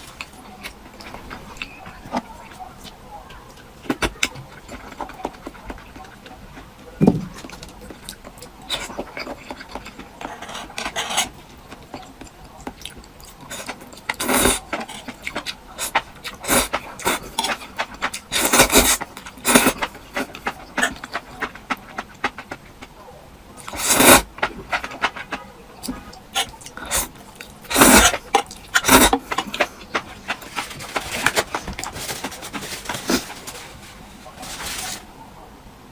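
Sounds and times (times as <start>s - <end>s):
rapid chewing and mouth clicks: 0.0s - 34.0s
slurps: 7.3s - 22.9s, 23.6s - 33.7s.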